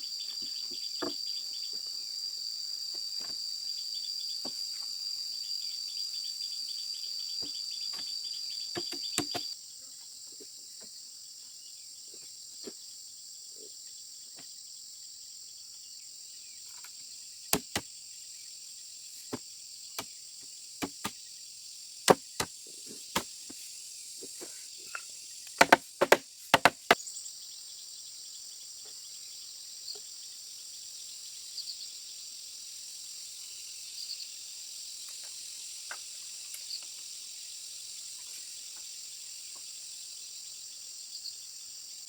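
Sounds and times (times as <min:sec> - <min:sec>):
insects chirring: 0:00.0 - 0:42.0
sharp knocks: 0:20.8 - 0:21.2, 0:25.6 - 0:27.0.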